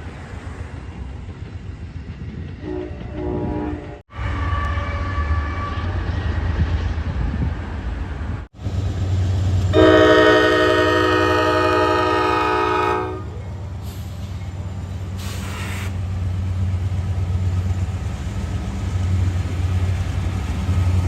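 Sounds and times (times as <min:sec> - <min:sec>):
low rumble of a train: 0:00.0 - 0:21.0
locomotive horn chord: 0:02.6 - 0:06.0, 0:09.7 - 0:13.4.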